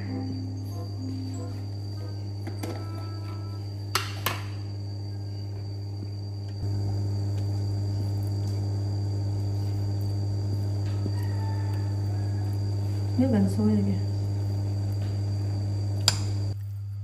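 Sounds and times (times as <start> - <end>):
induction cooktop humming: 0.0 - 17.0
thin high whine: 0.0 - 17.0.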